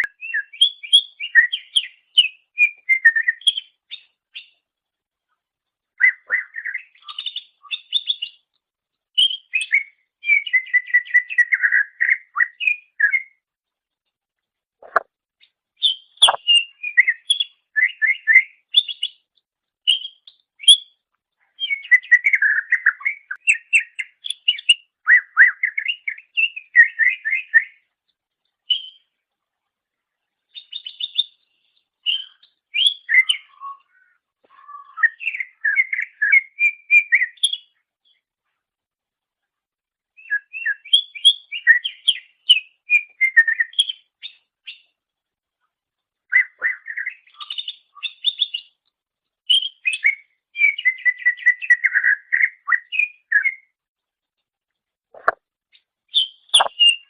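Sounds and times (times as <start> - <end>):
bird singing chattering whistles: 15.8 - 19.1, 56.1 - 57.0.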